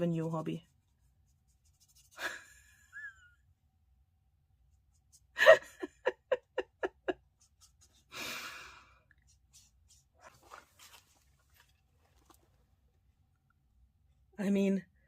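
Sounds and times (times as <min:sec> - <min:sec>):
woman laughing: 0:02.2 - 0:03.4, 0:05.4 - 0:07.3.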